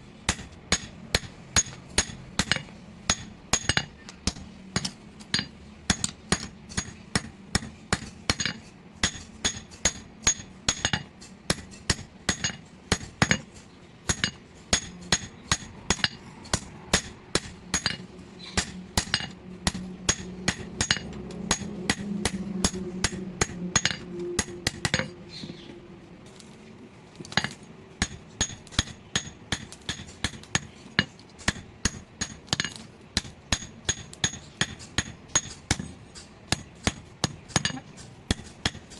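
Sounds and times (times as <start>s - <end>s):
low steady hum: 0.0s - 38.9s
hammer striking steel on anvil: 0.3s - 25.2s, 27.3s - 38.9s.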